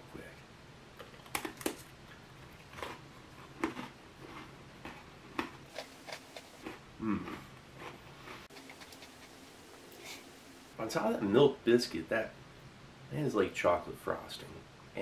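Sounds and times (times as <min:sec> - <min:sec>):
crunching and chewing biscuit: 0:01.0 - 0:09.4.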